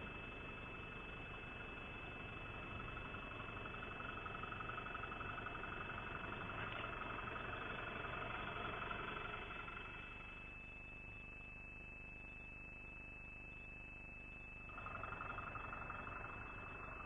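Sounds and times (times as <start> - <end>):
vehicle engine pulsing: 0.0 - 10.5, 14.7 - 17.0.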